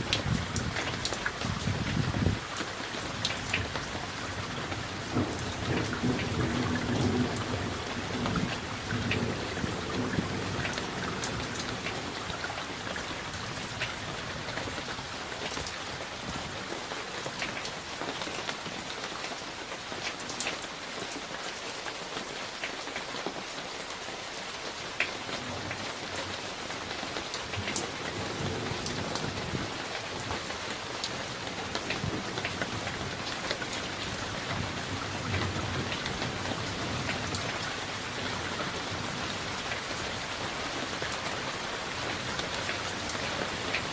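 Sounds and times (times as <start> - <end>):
rain drops on hard surface: 0.0 - 43.9
distant thunder rumble: 3.1 - 12.2.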